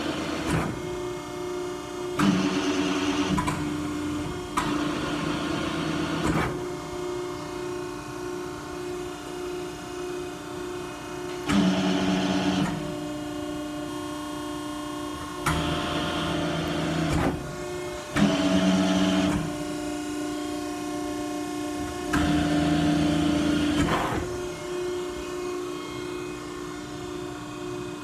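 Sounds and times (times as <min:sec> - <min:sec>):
hydraulic pump hum: 0:11.3 - 0:27.2.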